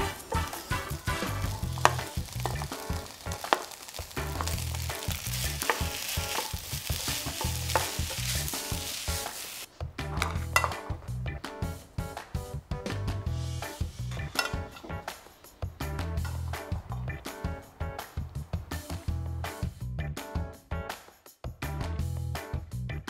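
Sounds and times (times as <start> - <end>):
fried rice sizzling in a wok: 0.0 - 11.1, 13.2 - 19.7
wooden spatula scraping: 0.0 - 11.1.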